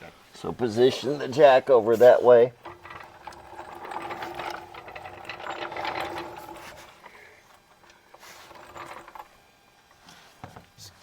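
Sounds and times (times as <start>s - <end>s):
floor jack wheels rattling: 2.6s - 7.0s, 8.2s - 9.3s.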